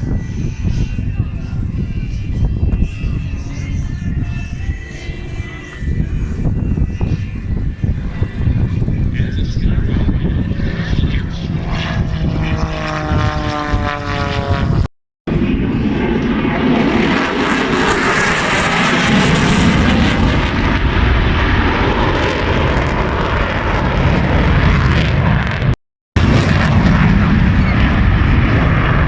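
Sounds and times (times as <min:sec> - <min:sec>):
aircraft engine roar: 0:00.0 - 0:29.0
propeller airplane flying past: 0:00.0 - 0:29.0.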